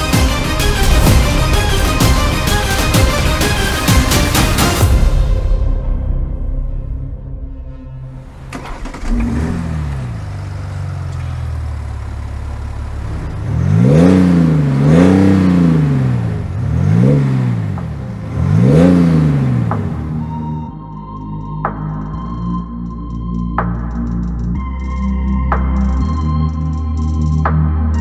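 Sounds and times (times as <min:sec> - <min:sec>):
car engine starting and idling: 0:00.0 - 0:05.7, 0:07.9 - 0:20.7
engine throttle blips: 0:08.2 - 0:20.7.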